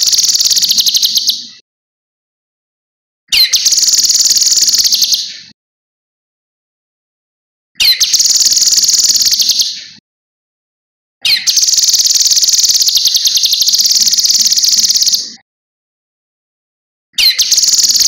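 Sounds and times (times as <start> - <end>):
bird singing fast high trill: 0.0 - 1.4, 3.3 - 5.3, 7.8 - 9.9, 11.2 - 15.4, 17.2 - 18.0.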